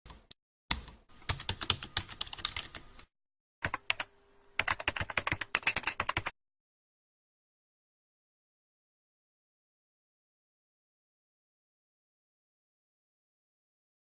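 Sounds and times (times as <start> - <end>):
computer keyboard typing: 0.1 - 6.4.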